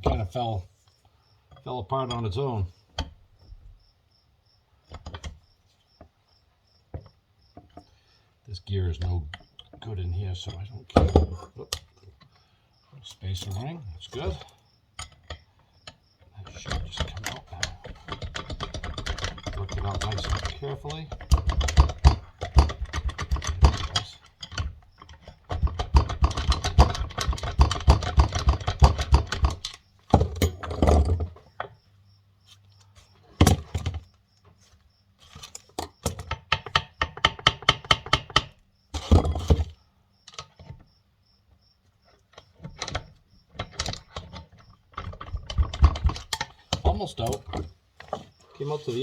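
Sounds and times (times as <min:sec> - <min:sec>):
metal-on-metal tapping and clicking: 0:01.5 - 0:03.2, 0:04.9 - 0:06.1, 0:08.9 - 0:12.4, 0:13.1 - 0:31.8, 0:35.3 - 0:40.8, 0:42.2 - 0:48.3.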